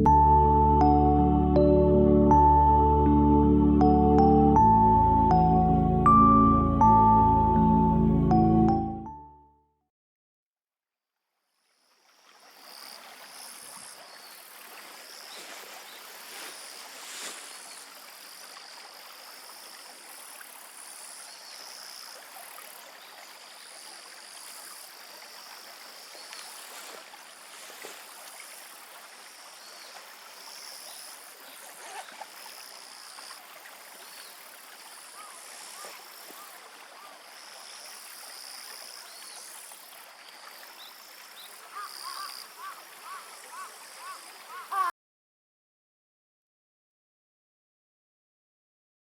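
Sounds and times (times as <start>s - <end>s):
flowing water: 11.8s - 44.9s.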